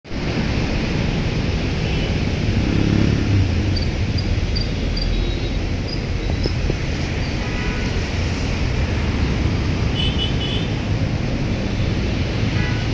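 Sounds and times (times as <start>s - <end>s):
heavy rain pouring: 0.1s - 9.9s
vehicle engine hum: 0.1s - 12.9s.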